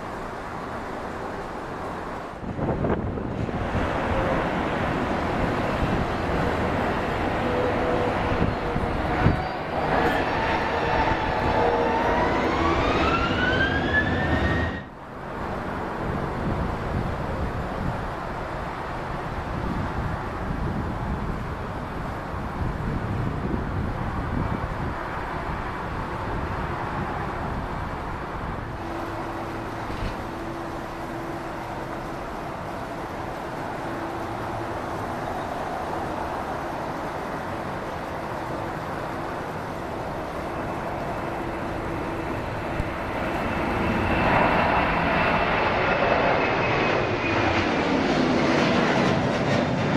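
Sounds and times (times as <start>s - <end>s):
jet engine rumble: 0.0s - 49.9s
jet engine whine: 0.0s - 49.9s
low engine tone: 27.9s - 49.9s.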